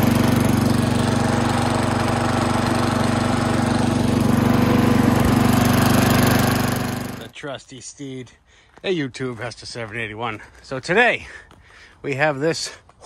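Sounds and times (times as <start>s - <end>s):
lawn mower engine running: 0.0s - 7.3s.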